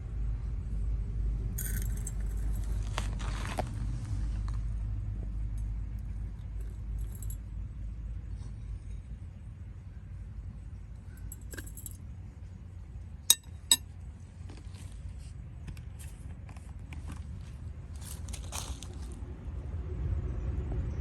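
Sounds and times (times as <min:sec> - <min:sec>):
steady low rumble: 0:00.0 - 0:14.3
kitchenware clinking: 0:13.3 - 0:13.8.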